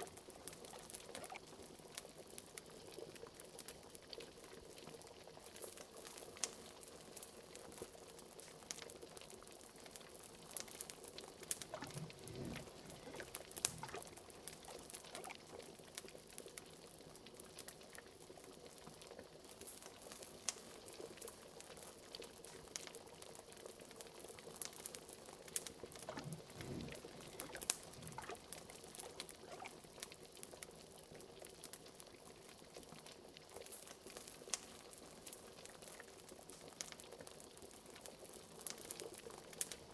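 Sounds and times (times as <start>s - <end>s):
small crackling pops: 0.0s - 2.9s, 10.6s - 16.7s, 19.6s - 30.2s
liquid bubbling in a cauldron: 0.0s - 39.9s
large low bubbles glugging: 11.5s - 15.4s, 25.9s - 29.8s.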